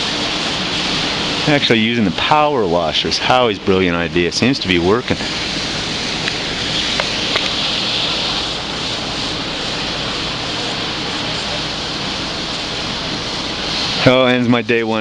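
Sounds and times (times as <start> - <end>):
power washer spraying: 0.0 - 15.0.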